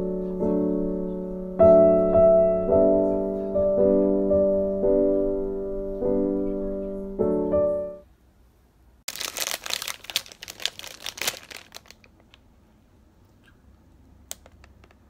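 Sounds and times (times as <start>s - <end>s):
electric piano melody: 0.0s - 8.0s
crackling and rustling clicks: 9.1s - 12.5s, 14.3s - 15.0s.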